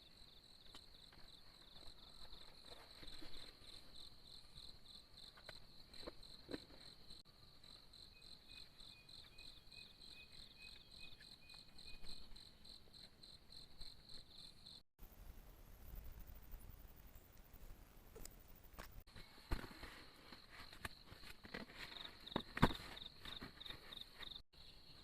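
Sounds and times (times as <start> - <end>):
fainter insect chirping: 7.1 - 19.0.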